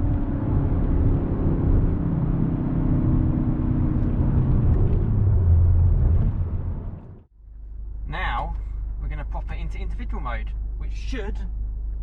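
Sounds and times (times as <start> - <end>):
car engine and exhaust: 0.0 - 12.0
road noise: 0.0 - 12.0.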